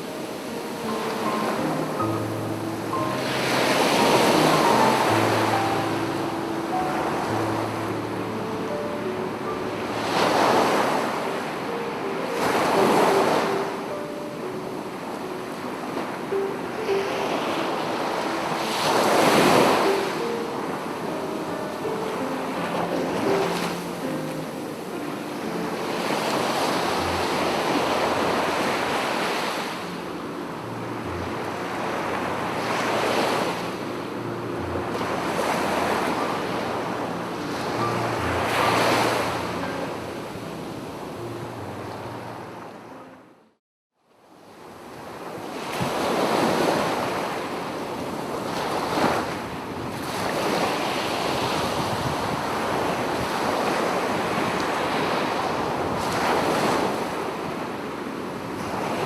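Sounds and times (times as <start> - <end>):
sea waves washing onto beach: 0.0 - 41.7, 44.6 - 59.0
wind on microphone: 45.0 - 59.0.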